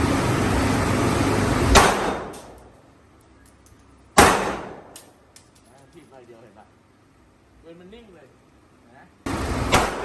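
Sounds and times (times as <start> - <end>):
gunshots: 1.7 - 2.5, 4.2 - 5.0, 9.7 - 10.0.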